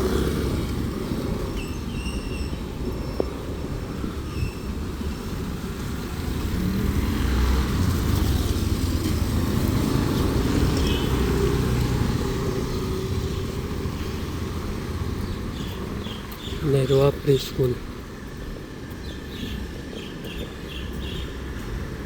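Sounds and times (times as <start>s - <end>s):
vehicle engine passing by: 5.9s - 16.2s.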